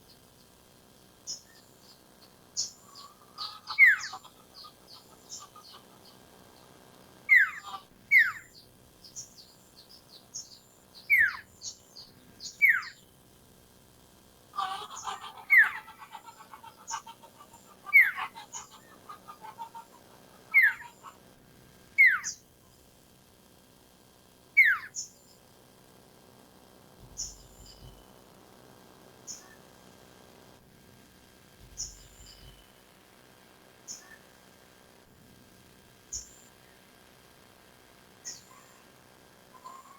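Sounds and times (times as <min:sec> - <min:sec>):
bird chattering: 0:02.2 - 0:06.7, 0:07.3 - 0:09.3, 0:12.4 - 0:13.0, 0:14.6 - 0:21.3, 0:22.0 - 0:22.4, 0:24.6 - 0:25.1, 0:27.0 - 0:28.0, 0:31.6 - 0:32.6, 0:39.6 - 0:39.9.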